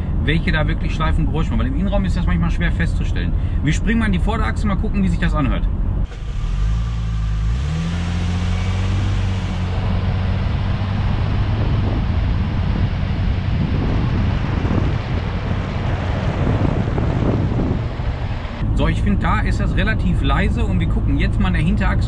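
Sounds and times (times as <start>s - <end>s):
tyre road and wind noise: 0.0s - 22.0s
car engine pulling away: 6.0s - 21.9s.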